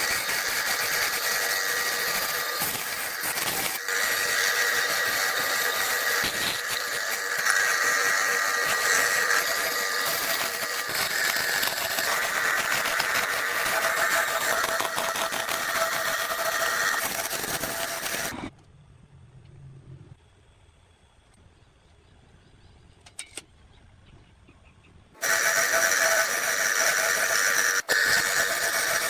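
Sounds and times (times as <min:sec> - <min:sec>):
power tool running: 0:00.0 - 0:18.4, 0:25.2 - 0:29.0
faint low hum: 0:18.4 - 0:25.1.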